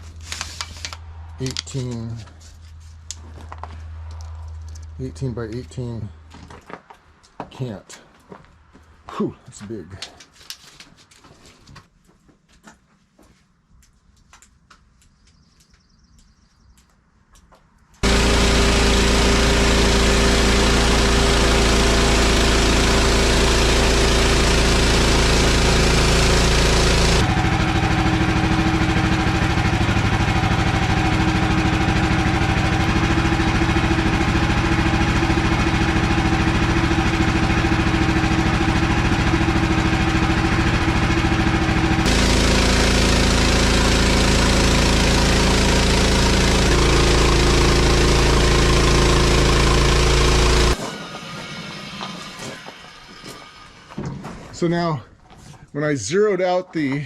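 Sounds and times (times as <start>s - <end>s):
small gasoline engine running: 18.0s - 54.0s.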